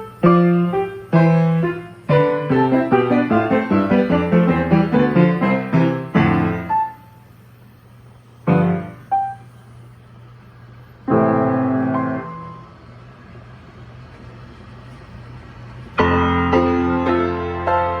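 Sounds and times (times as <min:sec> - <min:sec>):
player piano playing: 0:00.0 - 0:07.3, 0:08.4 - 0:09.6, 0:11.0 - 0:13.1, 0:15.9 - 0:18.0.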